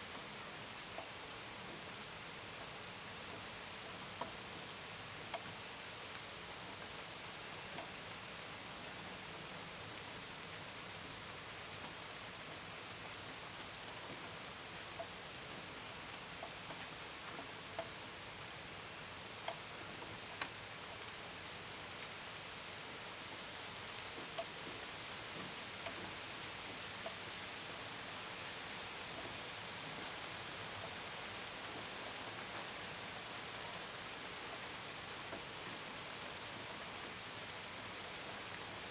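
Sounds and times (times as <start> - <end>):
steady gentle rain: 0.0 - 38.9
crickets chirping: 25.4 - 38.9.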